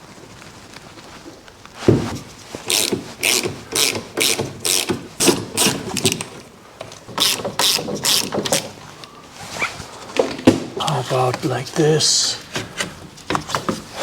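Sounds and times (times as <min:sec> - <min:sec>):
ratchet wrench clicking: 0:02.7 - 0:06.1, 0:07.2 - 0:08.3.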